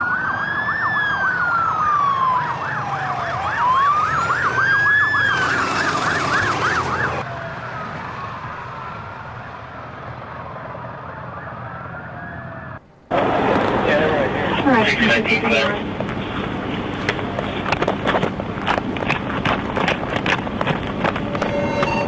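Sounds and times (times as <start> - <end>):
police siren yelping: 0.0 - 9.3
police siren wailing: 0.0 - 13.7
rushing hiss: 4.5 - 7.2.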